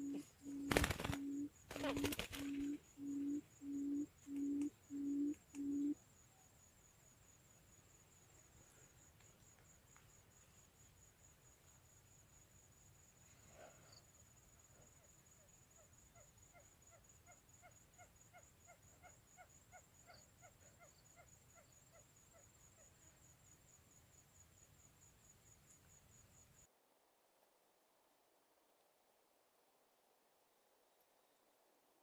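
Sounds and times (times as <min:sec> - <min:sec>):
quail calling: 0:00.0 - 0:06.0
insect trilling: 0:00.0 - 0:07.1.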